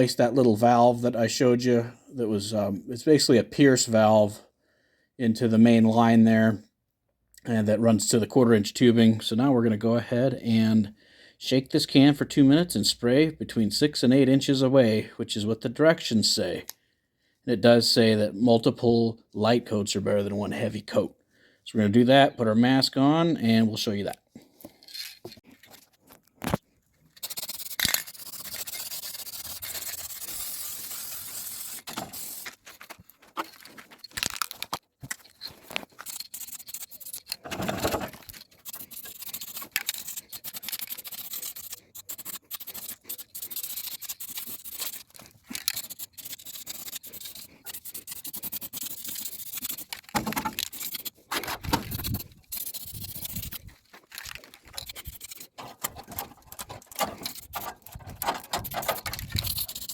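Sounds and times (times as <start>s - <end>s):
spray paint can hissing: 27.2s - 32.6s, 36.0s - 37.3s, 38.6s - 51.2s, 51.9s - 53.6s, 54.8s - 55.6s, 57.2s - 57.6s, 58.6s - 59.9s.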